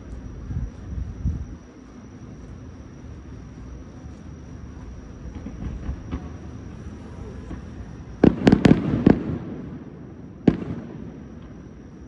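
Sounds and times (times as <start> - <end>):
fireworks bangs: 5.3 - 11.6.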